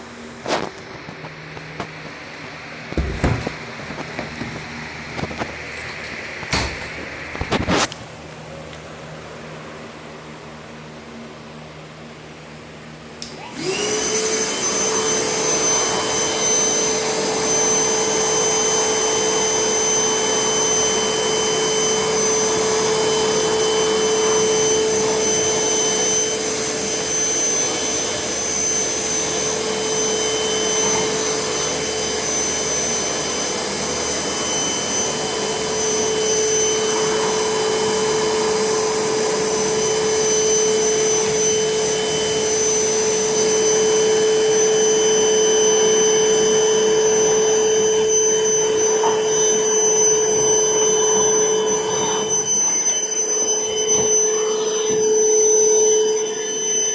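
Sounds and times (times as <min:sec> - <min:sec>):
vacuum cleaner motor whine: 0:00.0 - 0:08.0, 0:09.4 - 0:56.9
vacuum cleaner switch click: 0:13.2 - 0:13.8.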